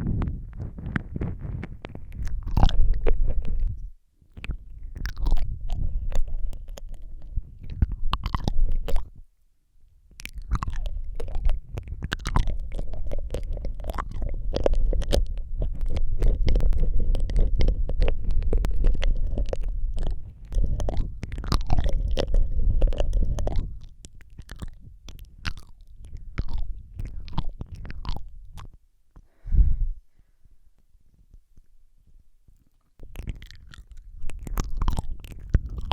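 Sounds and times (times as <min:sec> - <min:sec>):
wet mouth clicks and smacks: 0:00.1 - 0:09.2, 0:10.1 - 0:28.8, 0:32.6 - 0:35.9.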